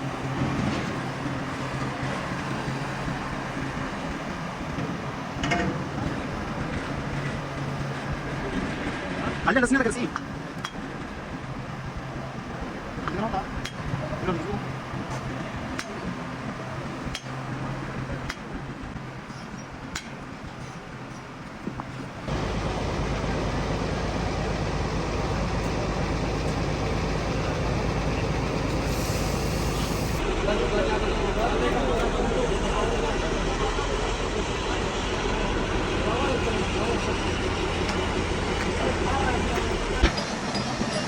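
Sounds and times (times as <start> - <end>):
low mechanical hum: 22.1 - 40.2.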